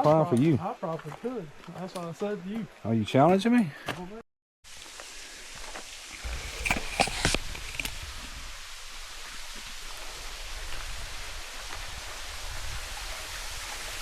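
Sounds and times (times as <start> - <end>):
running water: 4.7 - 14.0.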